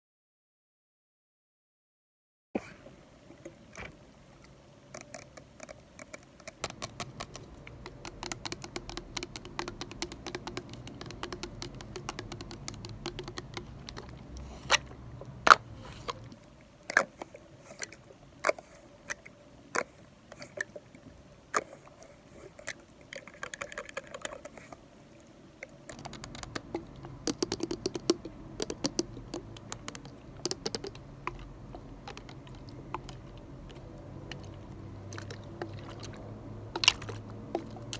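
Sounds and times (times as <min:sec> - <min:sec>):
light tapping and clicking: 0:06.0 - 0:16.4, 0:25.9 - 0:37.9
scratchy rustle: 0:13.6 - 0:16.4.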